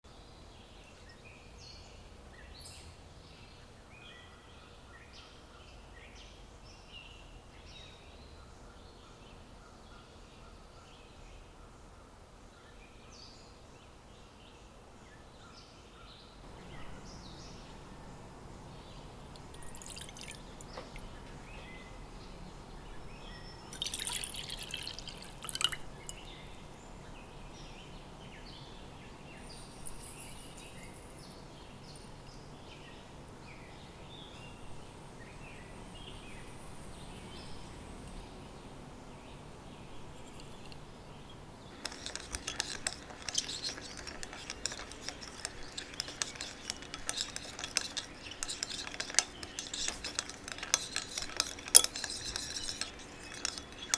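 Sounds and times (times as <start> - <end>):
utensil stirring in a bowl: 18.7 - 21.8, 23.2 - 26.7, 29.4 - 32.0, 40.1 - 40.9, 41.7 - 53.9
liquid pouring into a bowl: 19.2 - 21.2, 23.6 - 26.5, 41.8 - 53.9.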